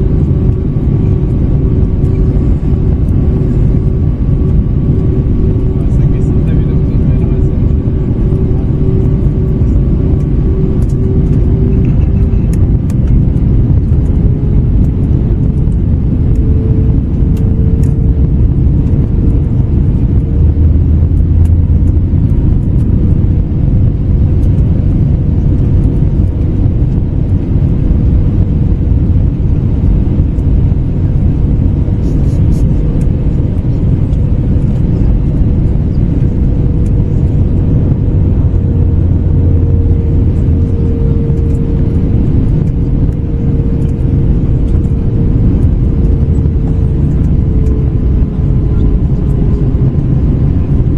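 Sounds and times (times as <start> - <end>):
engine tone rising in pitch: 0.0 - 13.1, 35.7 - 50.9
airliner cabin rumble: 0.0 - 50.9.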